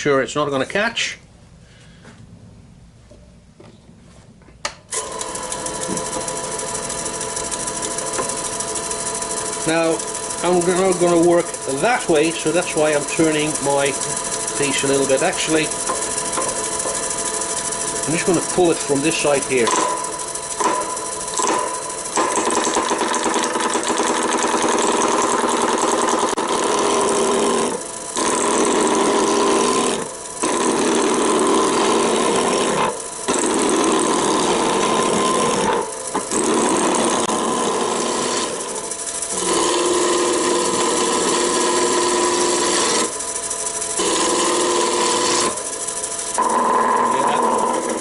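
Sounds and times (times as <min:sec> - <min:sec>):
lathe whine: 0:04.9 - 0:48.0
gouge rasping on lathe wood: 0:05.4 - 0:20.6, 0:26.5 - 0:38.6, 0:39.3 - 0:43.1, 0:44.0 - 0:45.6, 0:46.3 - 0:48.0.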